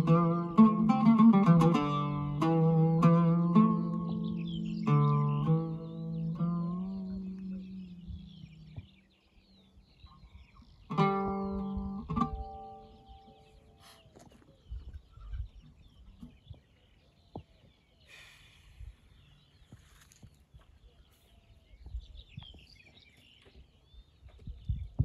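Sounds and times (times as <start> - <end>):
oud plucked note: 0.0 - 8.8, 10.8 - 13.7
birds chirping and calling: 0.0 - 25.0.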